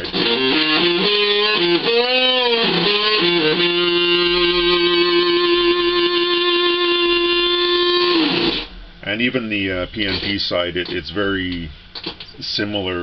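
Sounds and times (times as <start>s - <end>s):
fuzz electric guitar: 0.0s - 9.0s.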